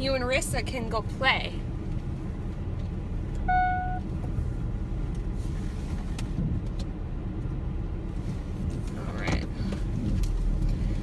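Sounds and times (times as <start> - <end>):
short steady beep: 3.4 - 4.1.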